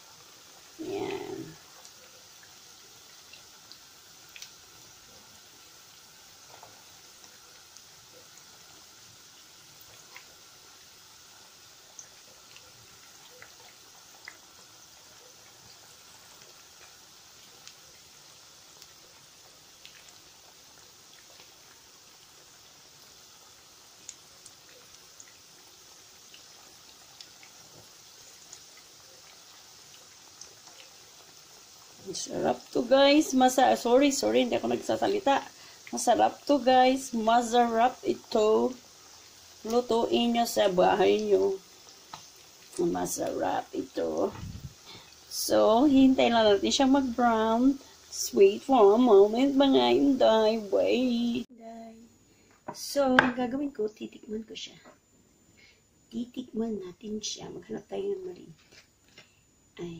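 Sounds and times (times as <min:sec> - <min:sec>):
meatballs sizzling in a pan: 0:00.0 - 0:54.6
small pops and crackles: 0:01.1 - 0:05.0, 0:09.4 - 0:32.1, 0:41.2 - 0:43.4.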